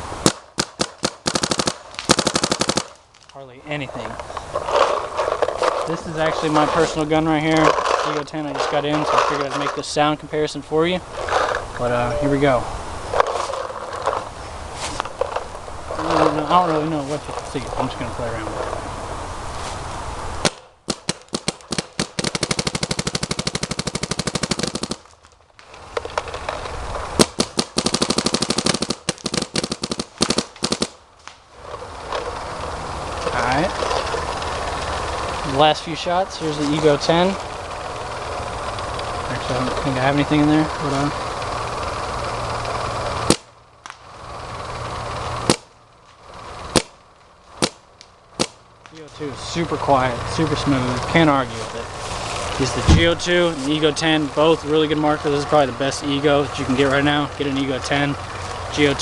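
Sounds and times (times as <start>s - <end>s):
steady hiss: 0.0s - 43.4s, 44.0s - 59.0s
paintball marker firing: 0.2s - 3.0s, 20.4s - 25.2s, 27.2s - 31.0s, 43.2s - 44.0s, 45.4s - 45.7s, 46.7s - 47.0s, 47.6s - 48.6s.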